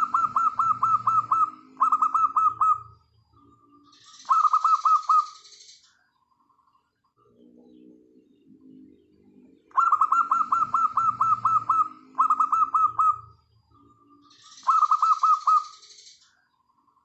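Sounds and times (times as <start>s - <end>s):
rapid repeated high bird notes: 0.0s - 2.9s, 9.7s - 13.3s, 14.4s - 16.0s
doves cooing softly: 0.0s - 5.3s, 9.7s - 15.7s.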